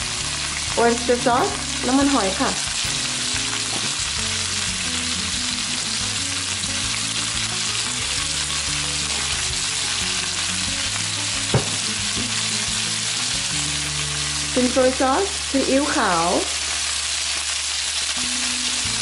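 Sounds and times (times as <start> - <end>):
shrimp sizzling in a wok: 0.0 - 19.0
sharp tap: 11.5 - 11.9.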